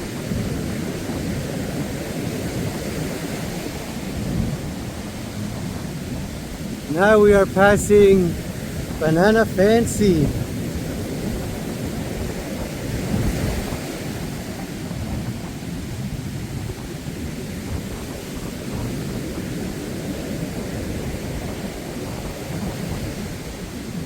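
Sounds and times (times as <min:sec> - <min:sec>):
surf rushing on beach: 0:00.0 - 0:24.0
wind buffeting microphone: 0:00.0 - 0:24.0.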